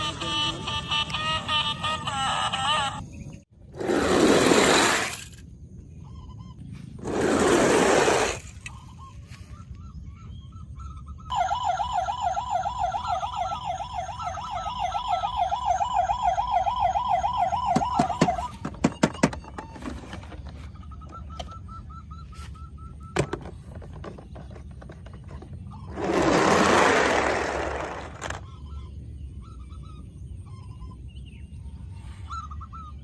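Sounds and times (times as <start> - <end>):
toy electronic siren warbling: 11.3 - 20.1.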